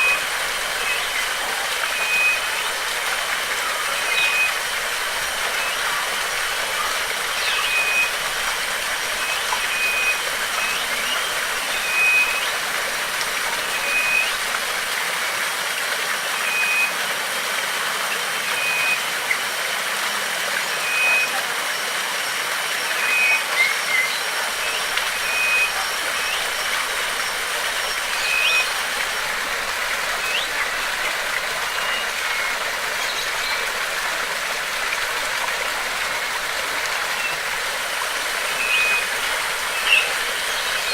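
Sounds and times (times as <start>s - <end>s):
rushing stream water: 0.0s - 40.9s
bird chirps: 28.1s - 28.8s, 30.2s - 30.8s, 38.4s - 40.9s.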